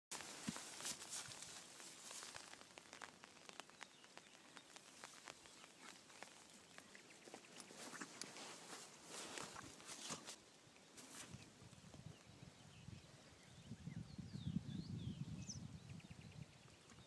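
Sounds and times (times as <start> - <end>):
faint footsteps: 0.1 - 10.4
rustling: 0.1 - 11.6.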